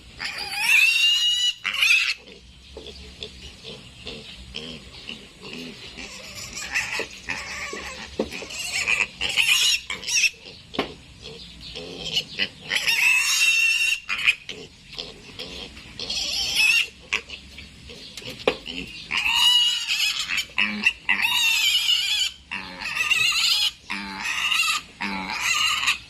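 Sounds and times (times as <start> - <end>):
piglet squealing: 0.2 - 2.3, 6.0 - 10.5, 11.9 - 14.5, 16.0 - 17.4, 19.1 - 26.0.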